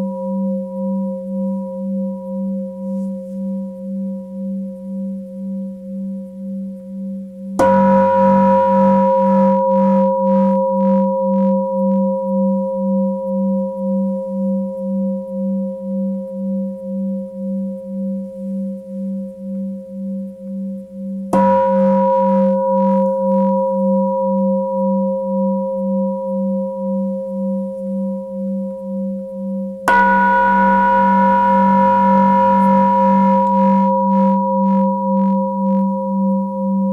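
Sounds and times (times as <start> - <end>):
singing bowl ringing: 7.6 - 16.1, 21.4 - 29.3, 29.9 - 36.9.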